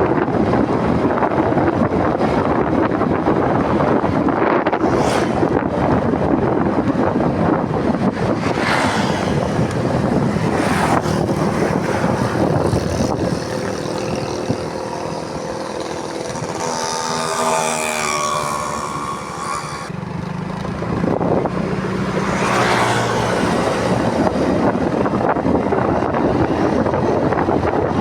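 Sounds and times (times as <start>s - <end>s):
wind rushing over microphone: 0.0s - 28.0s
motorcycle engine running: 9.0s - 28.0s.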